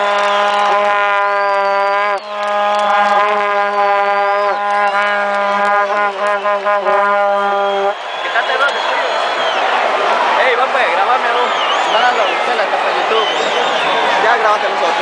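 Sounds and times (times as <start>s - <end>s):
vuvuzela low drone: 0.0s - 8.2s
vuvuzela blasts with pitch bends: 0.0s - 9.8s.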